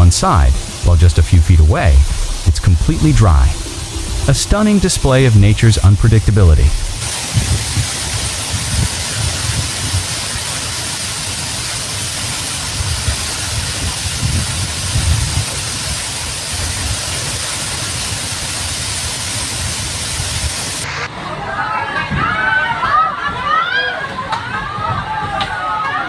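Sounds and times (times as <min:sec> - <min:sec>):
low rumble: 0:00.0 - 0:07.1
heavy rain hissing: 0:00.0 - 0:21.2.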